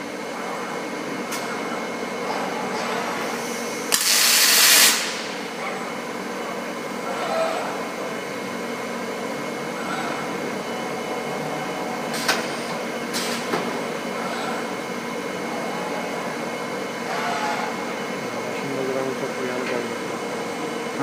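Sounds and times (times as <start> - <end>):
welding robot machine noise: 3.1 - 5.4
short hissing bursts: 3.9 - 5.2.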